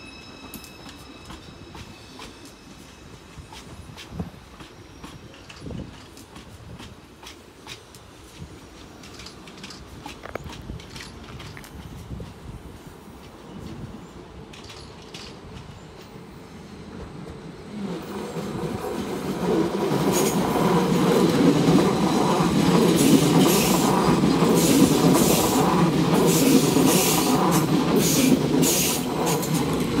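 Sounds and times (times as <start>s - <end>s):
wheel clacks over rail joints: 8.8s - 12.4s.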